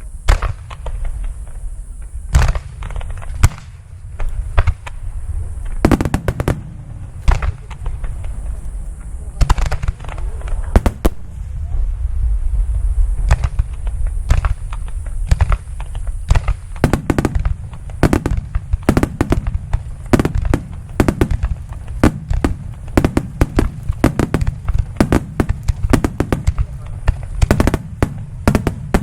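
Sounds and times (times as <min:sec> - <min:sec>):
fireworks bangs and crackles: 0:00.0 - 0:29.0
low rumble: 0:10.0 - 0:29.0.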